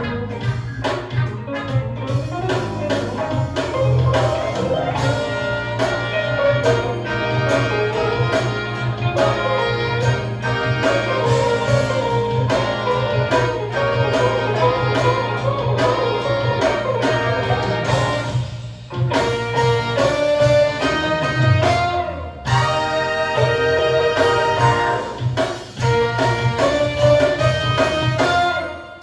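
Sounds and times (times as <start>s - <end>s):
instrumental music over hi-fi: 0.0s - 29.0s.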